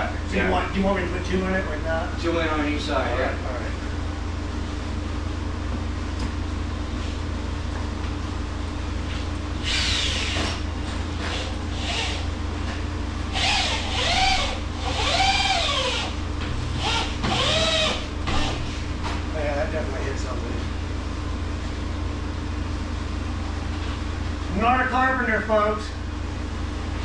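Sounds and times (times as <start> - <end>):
steady low hum: 0.0 - 27.0
power drill driving screws into wood: 9.7 - 10.6, 13.4 - 16.1, 16.8 - 18.6.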